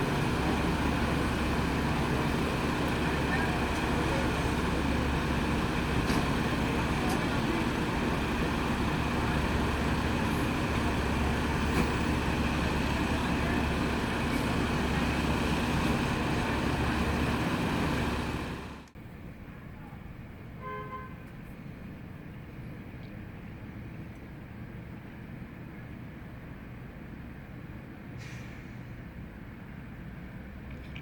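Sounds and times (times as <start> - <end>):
low engine hum: 0.0 - 20.4
road traffic noise: 0.0 - 31.0.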